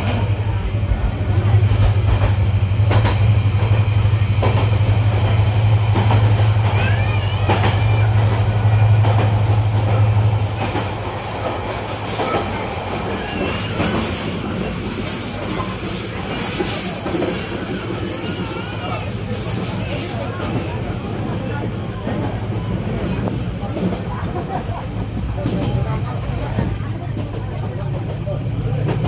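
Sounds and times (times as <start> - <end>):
train rumbling on rails: 0.0 - 29.0
high wheel squeals: 6.8 - 11.1, 12.1 - 20.4.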